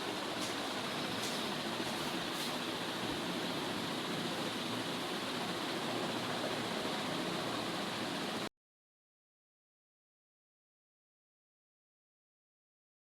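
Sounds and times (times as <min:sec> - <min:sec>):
ceiling fan air rush: 0:00.0 - 0:08.5.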